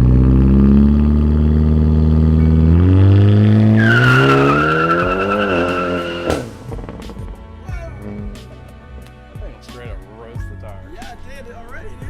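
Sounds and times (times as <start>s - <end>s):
loud car engine revving: 0.0s - 7.4s
tire squealing: 0.0s - 7.4s.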